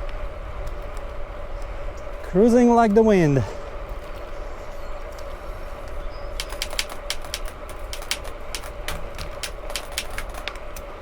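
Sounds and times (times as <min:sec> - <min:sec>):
bicycle rolling on trail: 0:00.0 - 0:11.0
steady hum: 0:00.0 - 0:11.0
wind rumble on microphone: 0:00.0 - 0:11.0
sharp clicks and ticks: 0:06.4 - 0:11.0.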